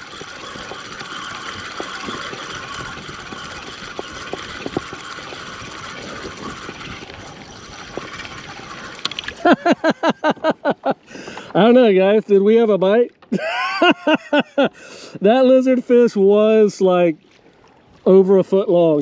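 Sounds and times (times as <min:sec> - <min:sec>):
high falling cries: 0:00.0 - 0:11.3
water lapping against kayak hull: 0:00.0 - 0:13.6, 0:14.7 - 0:19.0.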